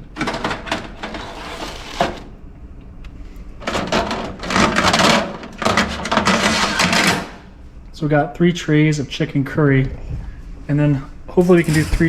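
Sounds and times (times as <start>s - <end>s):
plastic trays clattering: 0.2s - 2.2s, 3.6s - 7.4s.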